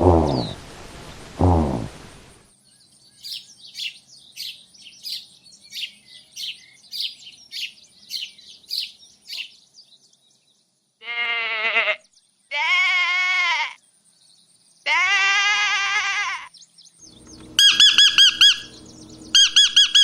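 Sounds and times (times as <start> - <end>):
bird chirping high call: 3.2 - 9.6, 17.1 - 20.0
livestock bleating: 11.0 - 13.8, 14.8 - 16.5.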